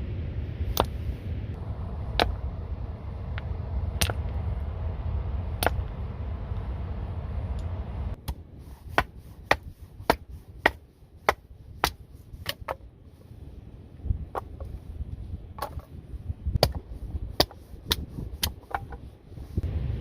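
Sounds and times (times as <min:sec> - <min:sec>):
low rumble: 0:00.0 - 0:18.4, 0:19.1 - 0:20.0
wood splitting strikes: 0:02.1 - 0:02.4, 0:05.6 - 0:05.9, 0:08.2 - 0:12.8, 0:16.6 - 0:19.0.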